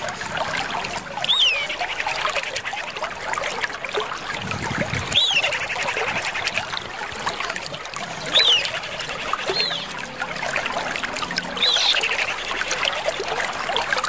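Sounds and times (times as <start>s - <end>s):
trickling water: 0.0s - 14.0s
chattering bird calls: 1.2s - 3.0s, 5.1s - 6.7s, 8.3s - 10.0s, 11.6s - 13.3s.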